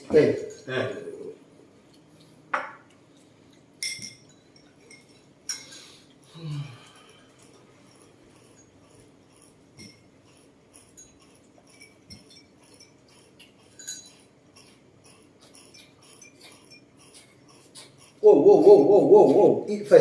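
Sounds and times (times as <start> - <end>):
dishes and cutlery clinking: 2.2 - 6.0, 9.8 - 14.8, 15.4 - 18.0.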